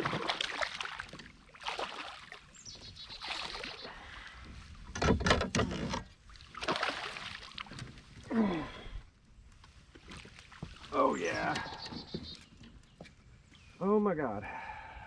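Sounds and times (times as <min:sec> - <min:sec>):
water splashing: 0:00.0 - 0:04.0, 0:06.2 - 0:07.8.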